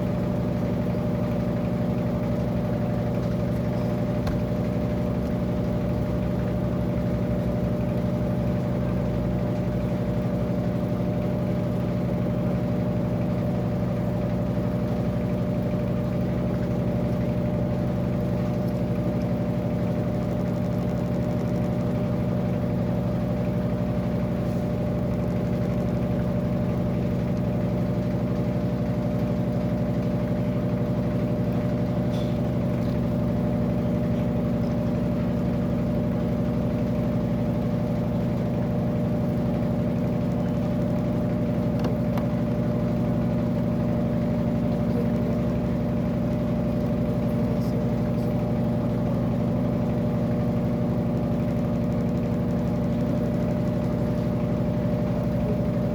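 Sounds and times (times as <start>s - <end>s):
washing machine motor hum: 0.0s - 55.9s.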